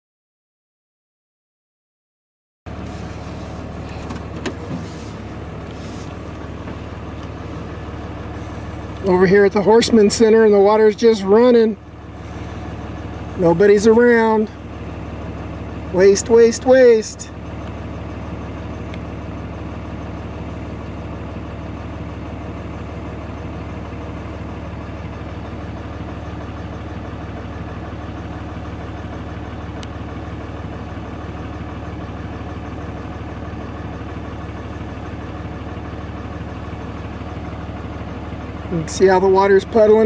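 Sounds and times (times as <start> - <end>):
vehicle engine idling: 2.7 - 40.0.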